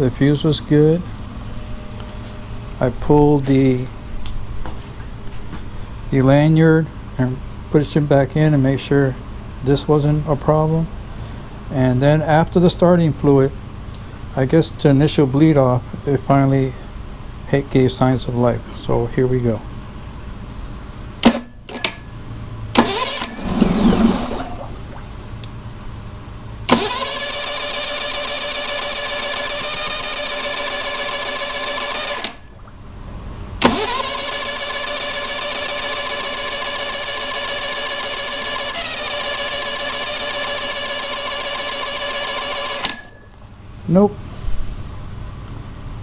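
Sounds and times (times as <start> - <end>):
outboard motor starting and running: 22.7 - 43.5.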